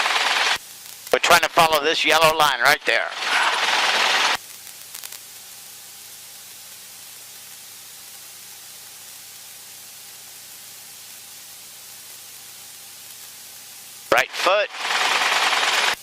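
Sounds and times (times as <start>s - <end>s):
intercom static hiss: 0.0s - 7.4s, 14.0s - 16.0s.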